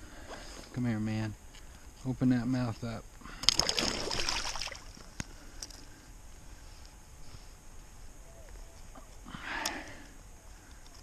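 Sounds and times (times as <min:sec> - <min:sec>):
water splash: 0:03.5 - 0:05.0.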